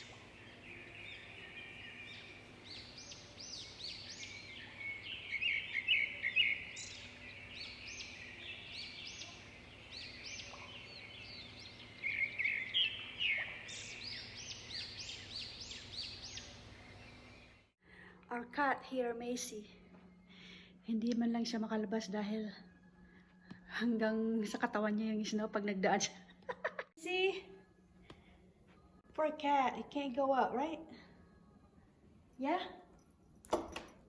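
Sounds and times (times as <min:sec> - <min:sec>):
songbirds chirping: 0:00.0 - 0:18.5.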